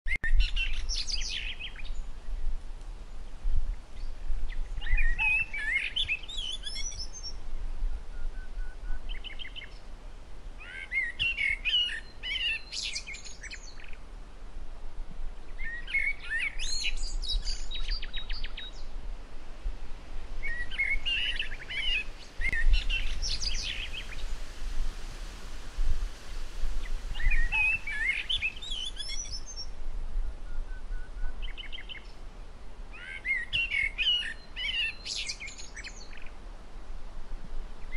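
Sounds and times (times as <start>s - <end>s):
songbirds singing and trilling: 4.0s - 7.4s, 15.5s - 18.9s, 20.4s - 24.6s, 26.2s - 29.7s, 30.5s - 32.2s, 33.0s - 36.4s.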